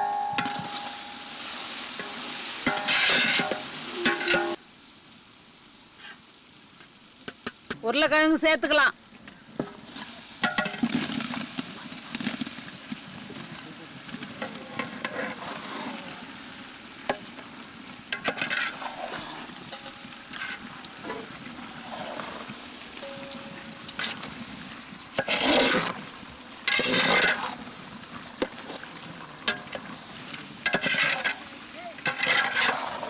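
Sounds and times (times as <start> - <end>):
spoon clicking on pan: 0.0 - 4.6
spoon scraping pan: 0.0 - 4.6, 9.6 - 11.2, 14.2 - 33.0
potatoes sizzling in a pan: 0.0 - 33.0.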